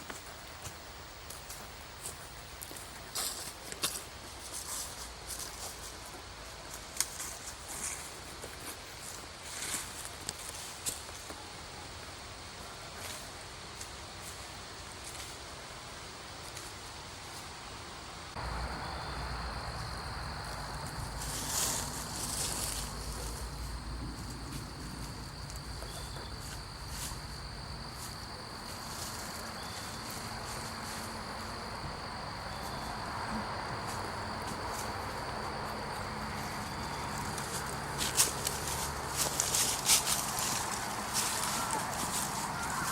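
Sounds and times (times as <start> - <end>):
insects trilling: 18.3 - 42.9.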